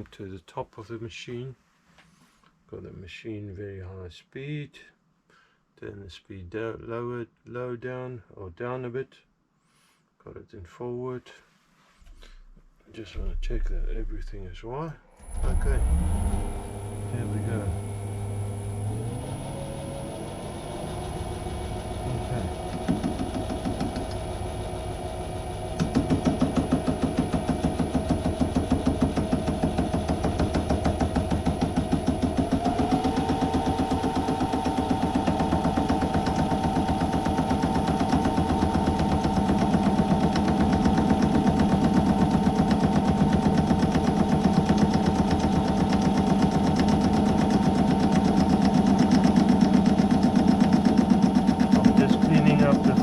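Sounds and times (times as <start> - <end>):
lathe cutting knocking: 15.2 - 53.0
lathe whine: 15.2 - 53.0.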